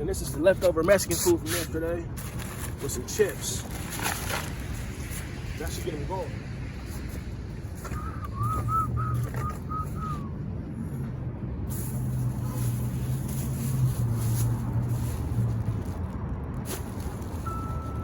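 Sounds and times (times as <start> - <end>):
vehicle engine rumbling: 0.0 - 18.0
reversing beeper: 17.4 - 18.0
short high chirps: 17.4 - 18.0.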